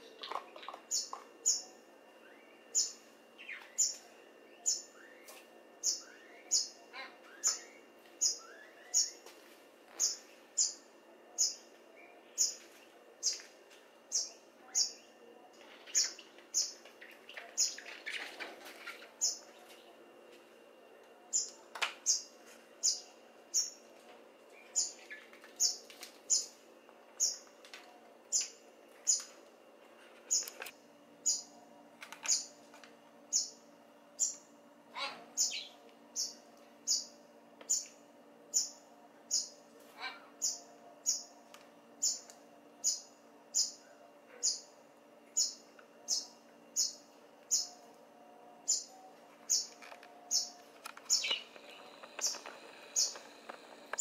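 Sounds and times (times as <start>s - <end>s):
young birds peeping: 15.6s - 19.9s, 48.7s - 54.0s.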